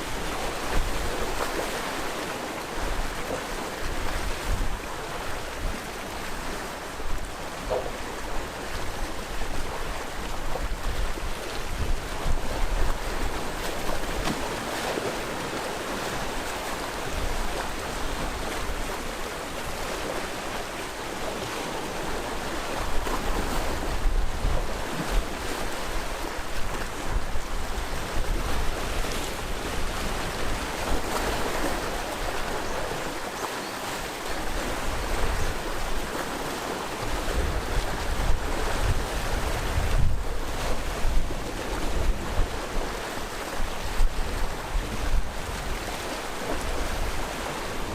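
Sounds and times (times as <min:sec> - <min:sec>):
sea waves breaking on shore: 0:00.0 - 0:47.9
wind buffeting microphone: 0:37.0 - 0:43.0.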